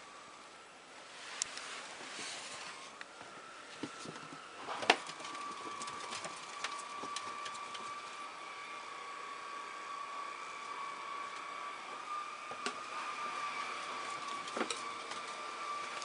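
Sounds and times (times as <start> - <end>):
ferret rummaging clicks and knocks: 14.1 - 16.0.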